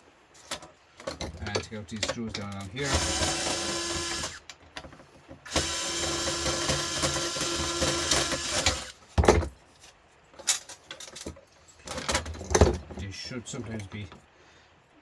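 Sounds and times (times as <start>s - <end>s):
cordless drill running: 2.8s - 4.5s, 5.5s - 9.0s.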